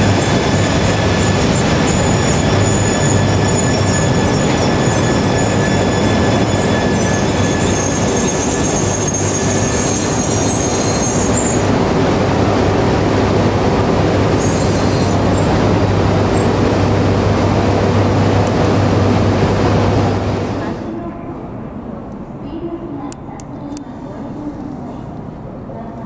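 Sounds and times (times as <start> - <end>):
train rumbling: 0.0 - 26.0
wheel and brake squeal: 0.1 - 11.7, 14.2 - 17.2.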